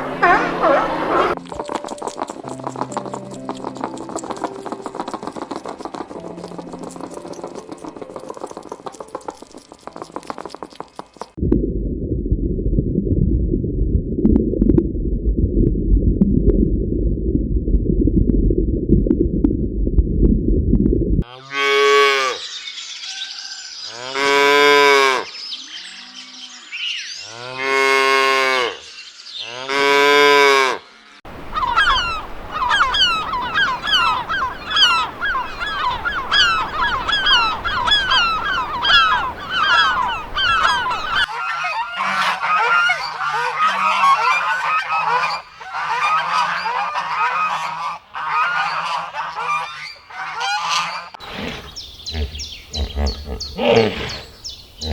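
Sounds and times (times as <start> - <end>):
cattle mooing: 0.0 - 1.4
geese honking: 0.0 - 1.4, 31.3 - 51.2.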